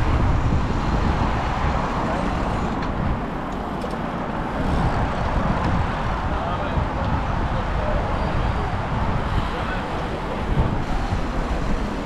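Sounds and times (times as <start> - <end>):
passing motor traffic: 0.0 - 12.0
wind rumbling on microphone: 0.0 - 12.0.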